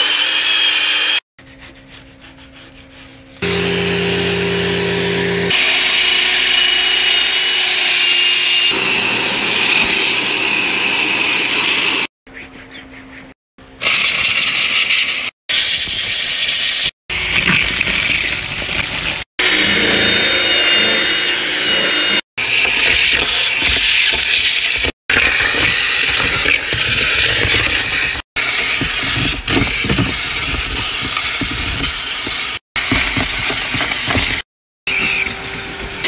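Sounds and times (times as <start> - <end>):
power tools running: 3.4 - 12.1, 19.4 - 22.7.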